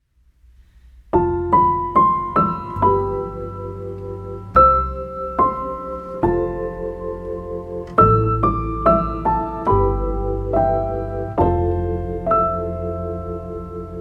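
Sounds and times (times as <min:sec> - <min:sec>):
soft piano music: 0:01.1 - 0:14.0.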